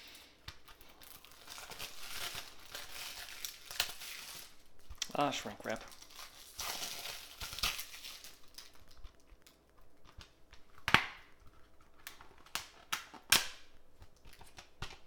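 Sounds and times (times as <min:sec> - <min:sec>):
plastic case snapping and clicking: 0:10.8 - 0:11.3, 0:12.0 - 0:13.7.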